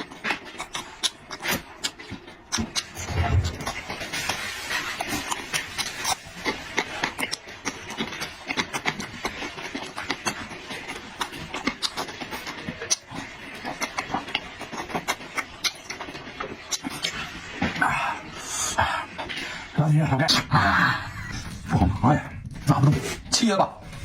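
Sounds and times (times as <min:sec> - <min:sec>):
person chewing: 0:00.0 - 0:24.0.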